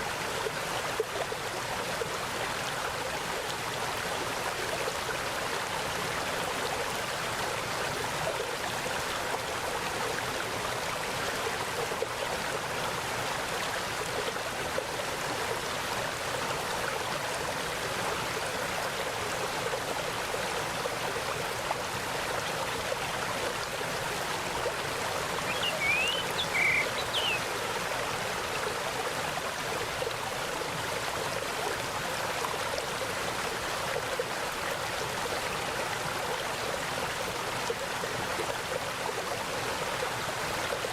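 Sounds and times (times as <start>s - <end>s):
stream flowing: 0.0s - 40.9s
bird chirping: 25.5s - 27.4s.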